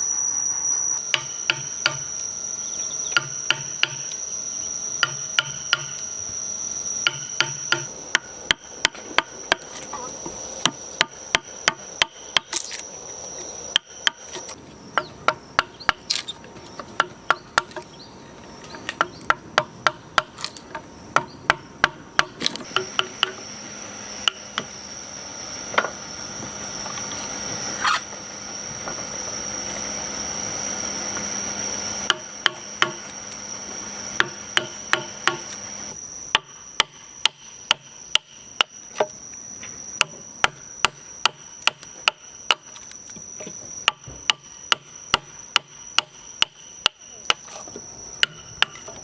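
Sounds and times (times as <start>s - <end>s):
high-pitched insect drone: 0.0s - 49.0s
sharp hammering knocks: 1.1s - 2.2s, 3.0s - 4.1s, 5.0s - 6.1s, 7.0s - 9.8s, 10.6s - 12.7s, 13.7s - 16.2s, 16.8s - 18.0s, 18.7s - 23.5s, 32.0s - 33.1s, 34.2s - 35.5s, 36.3s - 39.1s, 40.0s - 42.7s, 43.8s - 47.4s, 48.2s - 49.0s.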